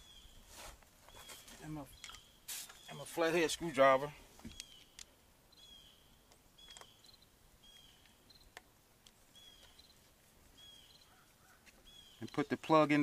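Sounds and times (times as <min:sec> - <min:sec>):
bird calling faintly: 0:04.4 - 0:08.6, 0:09.3 - 0:12.6.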